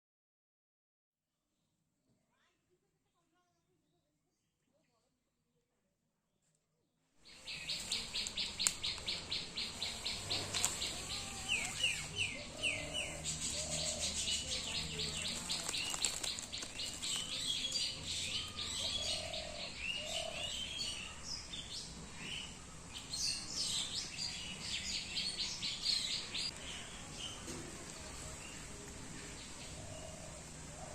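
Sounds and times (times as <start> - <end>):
birds chirping and calling: 7.2 - 30.9.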